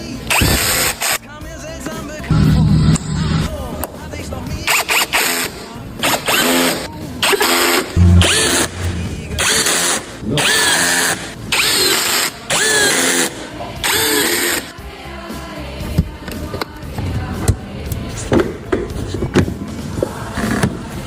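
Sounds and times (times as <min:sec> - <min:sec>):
power drill bursts: 0:00.3 - 0:01.2, 0:04.7 - 0:14.7.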